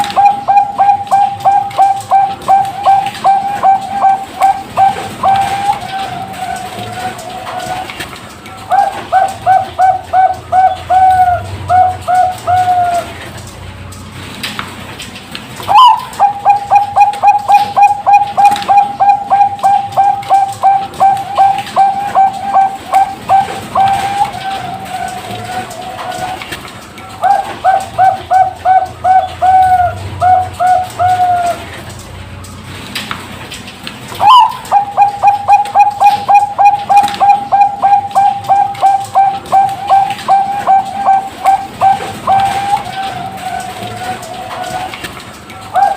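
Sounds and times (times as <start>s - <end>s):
dove cooing: 0.0s - 13.5s, 15.6s - 32.0s, 34.1s - 45.9s.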